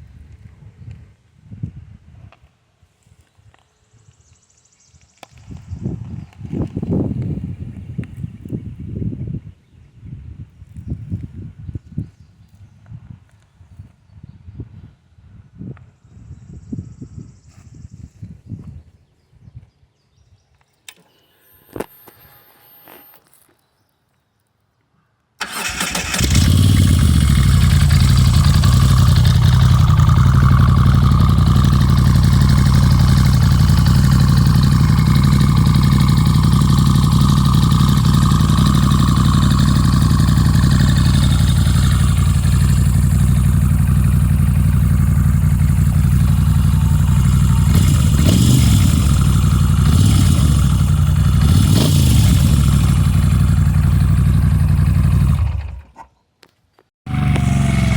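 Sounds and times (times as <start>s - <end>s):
motorcycle engine starting and idling: 25.4s - 56.1s, 57.1s - 57.9s.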